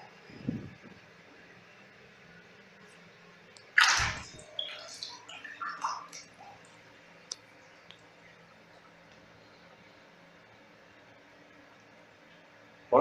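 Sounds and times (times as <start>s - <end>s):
water sloshing and dripping: 2.9s - 9.9s
water splash in bathtub: 3.6s - 6.8s.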